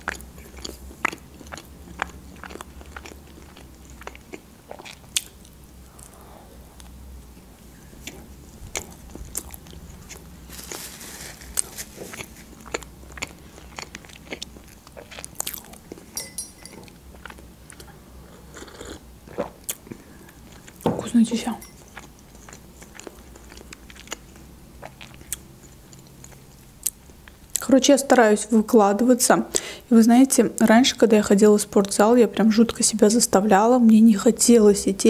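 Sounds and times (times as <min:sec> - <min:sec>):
person chewing food: 0:00.0 - 0:20.8, 0:21.7 - 0:27.4.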